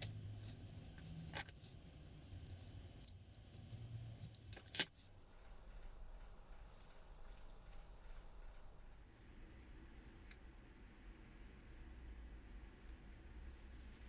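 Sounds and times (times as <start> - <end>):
padlock and key clicking: 0.0 - 4.9.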